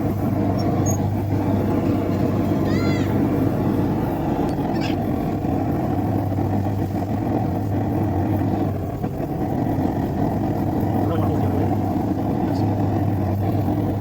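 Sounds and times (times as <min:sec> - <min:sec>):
forge burner roaring: 0:00.0 - 0:14.0
low hum: 0:00.0 - 0:14.0.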